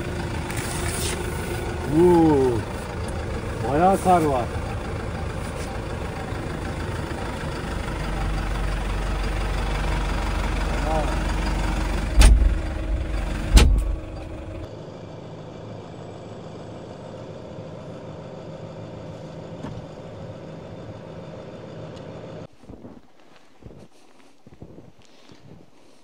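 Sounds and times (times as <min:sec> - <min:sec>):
vehicle engine rumbling: 0:00.0 - 0:26.0
loud thumps: 0:12.1 - 0:12.7, 0:13.4 - 0:14.2.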